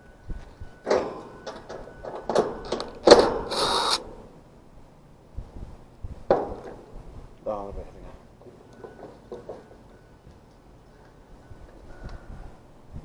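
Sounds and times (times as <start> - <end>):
brief buzzing whirr: 3.4 - 4.0.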